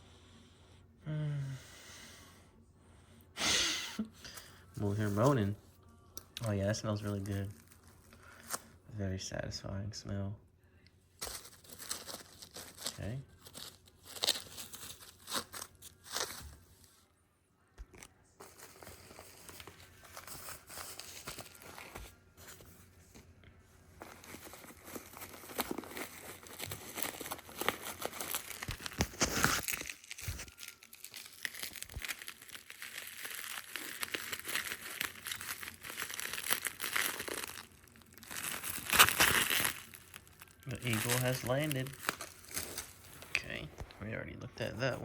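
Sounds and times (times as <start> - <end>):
packaging crinkling and tearing: 6.2 - 8.7, 11.2 - 16.9, 17.8 - 22.6, 24.0 - 43.9.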